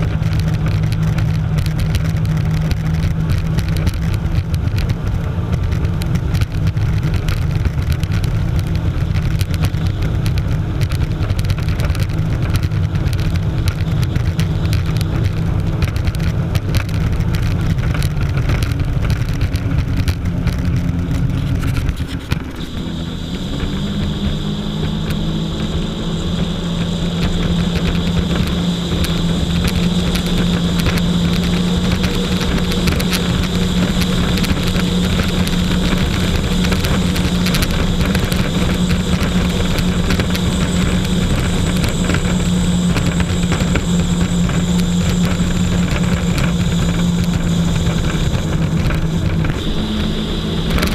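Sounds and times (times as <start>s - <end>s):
jet ski engine running: 0.0s - 50.9s
thin high whine: 21.6s - 35.0s, 38.4s - 50.9s.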